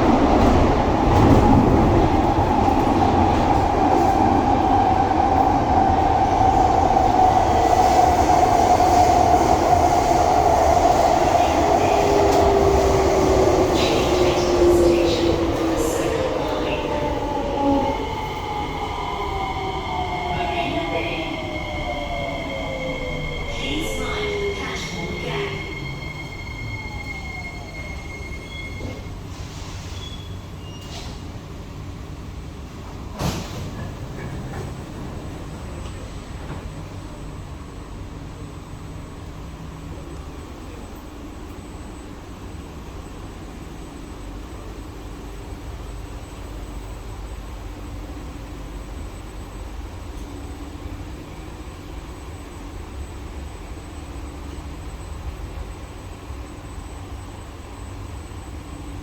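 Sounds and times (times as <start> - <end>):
train rumbling: 0.0 - 59.0.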